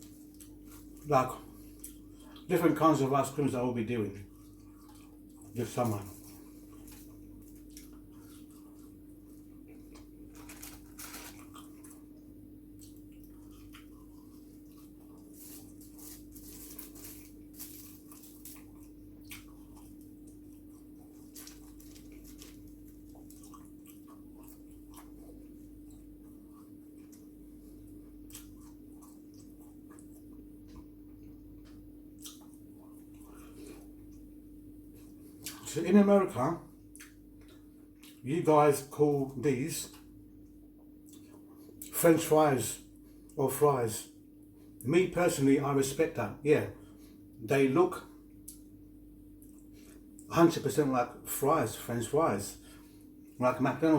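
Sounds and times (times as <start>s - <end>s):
soft chewing and mouth noises: 0.0s - 43.4s, 44.1s - 45.0s, 46.7s - 50.3s, 52.4s - 53.5s
steady low hum: 0.0s - 53.9s.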